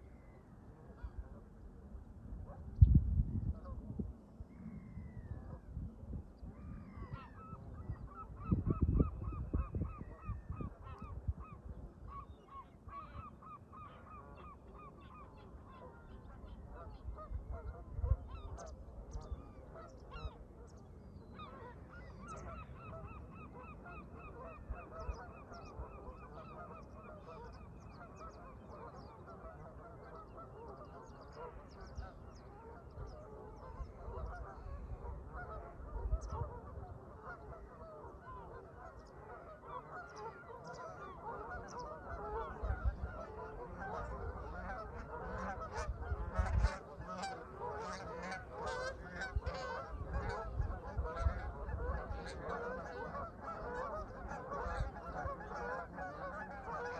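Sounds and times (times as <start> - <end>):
wind rumble on microphone: 0.8 - 13.6, 14.2 - 56.9
geese honking: 21.4 - 56.9.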